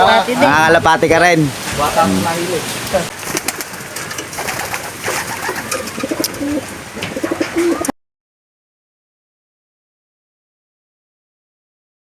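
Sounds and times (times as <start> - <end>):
pigeons cooing: 3.2 - 7.9.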